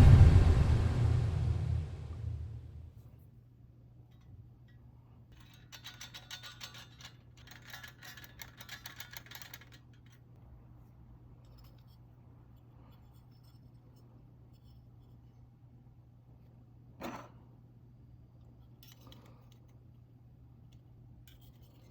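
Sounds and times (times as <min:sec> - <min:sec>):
faint low hum: 0:00.0 - 0:03.0.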